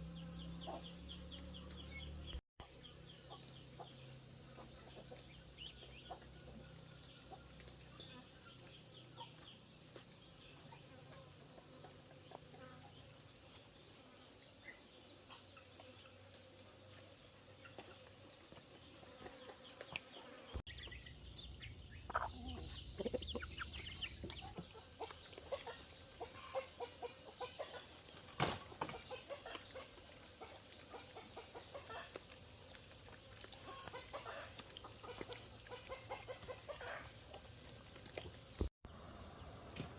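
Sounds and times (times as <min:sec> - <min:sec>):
chickens clucking: 0:00.5 - 0:01.9, 0:03.3 - 0:09.6, 0:19.2 - 0:38.4.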